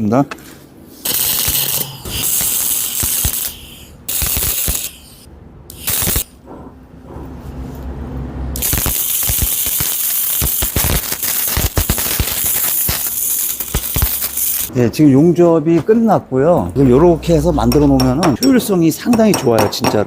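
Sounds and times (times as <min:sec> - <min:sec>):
welding arc crackling and hissing: 0:00.9 - 0:06.4, 0:08.6 - 0:14.7.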